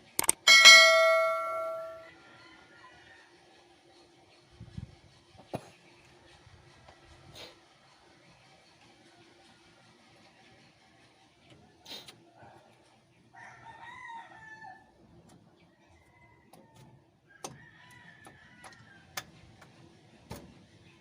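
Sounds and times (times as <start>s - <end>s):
sharp clicks and knocks: 0.0s - 2.0s
rooster crowing: 13.4s - 14.9s.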